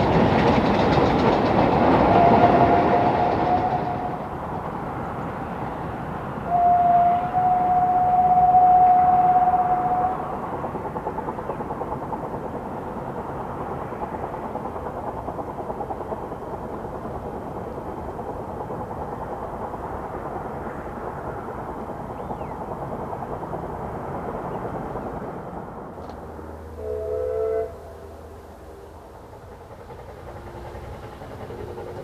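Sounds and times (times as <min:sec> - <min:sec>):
steam train running: 0:00.0 - 0:32.0
steam train whistle: 0:02.1 - 0:04.3, 0:06.4 - 0:10.4, 0:26.8 - 0:28.4.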